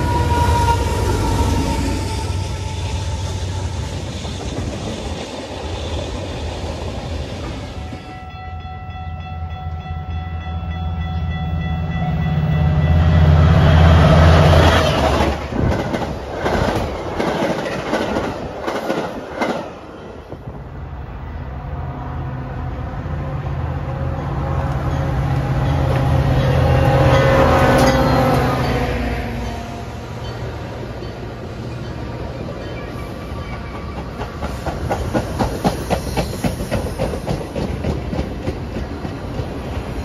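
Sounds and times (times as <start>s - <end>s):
locomotive air horn: 0.0s - 3.9s
train cars clattering: 0.0s - 8.5s, 13.9s - 20.5s, 24.5s - 40.0s.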